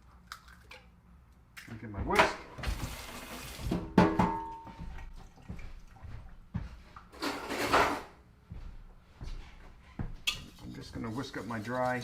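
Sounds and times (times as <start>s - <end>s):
kitchen utensils clattering: 7.2s - 8.2s.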